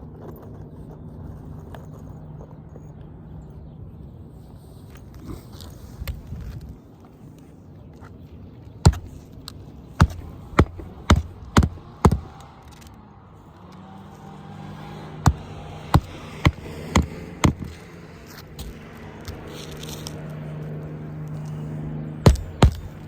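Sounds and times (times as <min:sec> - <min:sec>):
nails hammered into shingles: 0:08.9 - 0:09.3, 0:10.0 - 0:12.5, 0:15.2 - 0:17.9, 0:22.2 - 0:23.0
low hum: 0:14.6 - 0:23.0.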